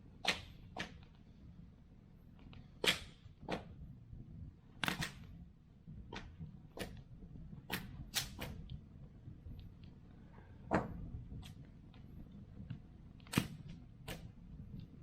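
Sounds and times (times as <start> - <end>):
low rumble of burning fire: 0.0 - 15.0
wood fire pops and snaps: 4.8 - 5.4, 7.7 - 8.8, 10.7 - 15.0.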